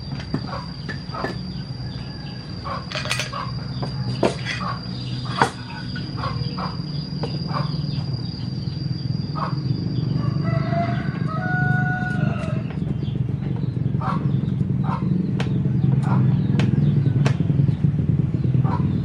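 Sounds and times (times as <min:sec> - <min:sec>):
steady low hum: 0:00.0 - 0:19.0
rooster crowing: 0:00.5 - 0:04.9, 0:10.1 - 0:12.7.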